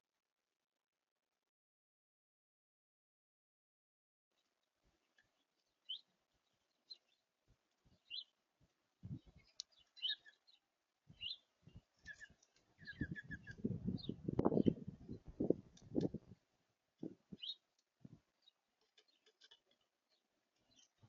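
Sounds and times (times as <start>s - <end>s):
songbirds chirping: 4.4s - 21.0s.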